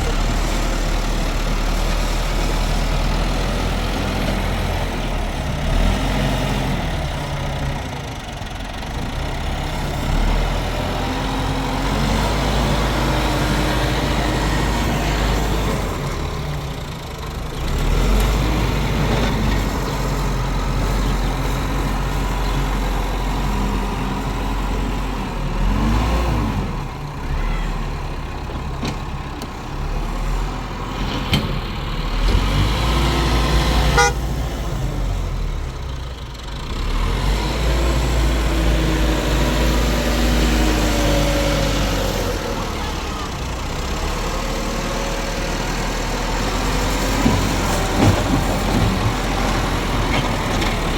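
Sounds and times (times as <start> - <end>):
engine running: 0.0 - 50.9.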